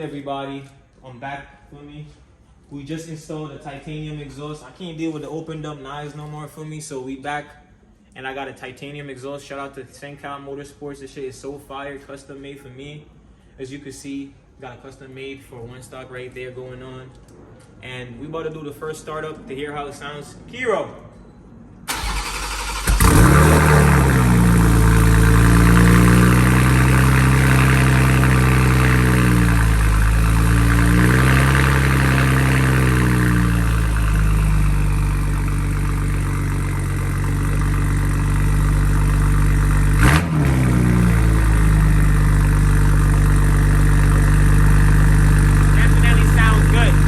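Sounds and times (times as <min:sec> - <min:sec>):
starter motor cranking: 0:21.9 - 0:24.0
car engine idling: 0:21.9 - 0:47.0.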